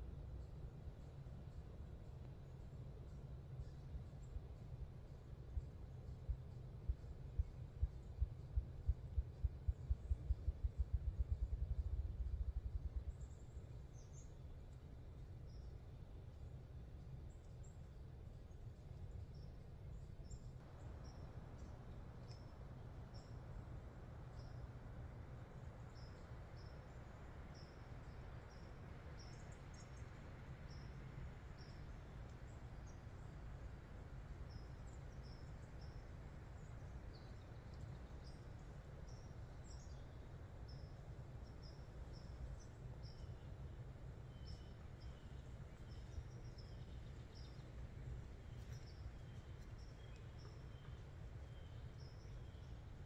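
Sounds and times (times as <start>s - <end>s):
faint low rumble: 0.0s - 53.0s
high songbird chirps: 25.5s - 33.4s, 34.4s - 53.0s
lower bird chirps: 44.2s - 47.8s.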